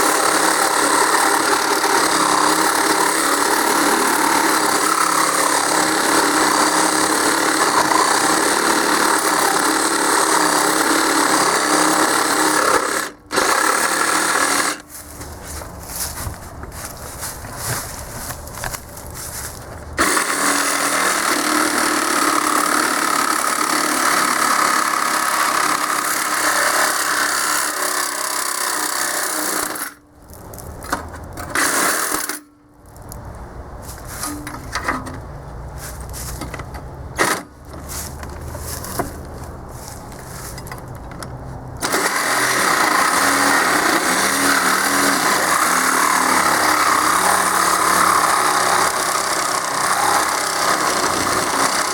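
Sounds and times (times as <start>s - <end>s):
reciprocating saw cutting metal: 0.0s - 14.9s, 20.0s - 30.0s, 41.8s - 51.9s.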